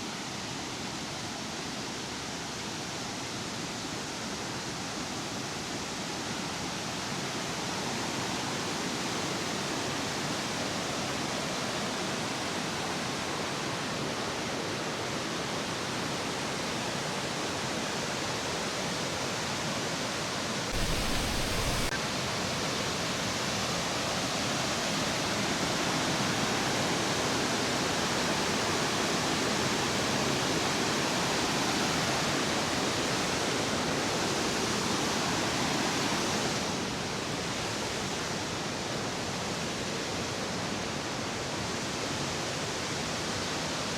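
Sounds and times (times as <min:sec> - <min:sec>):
waterfall roaring: 0:20.7 - 0:22.0.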